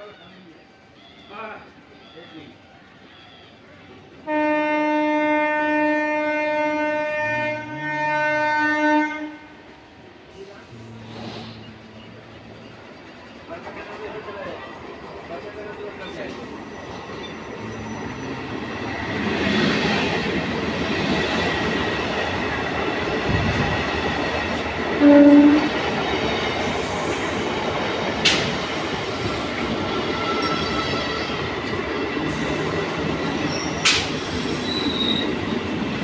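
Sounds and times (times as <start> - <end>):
train wheels on track: 0.0 - 36.0
train horn blast: 4.2 - 9.8, 10.6 - 12.9, 17.5 - 20.3, 25.0 - 25.8
sharp clacks: 28.2 - 28.6, 33.8 - 34.2.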